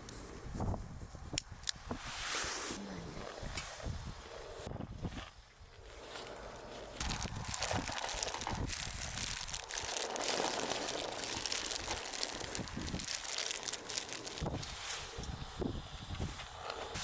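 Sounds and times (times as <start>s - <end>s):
crinkling and crackling: 4.6s - 17.0s.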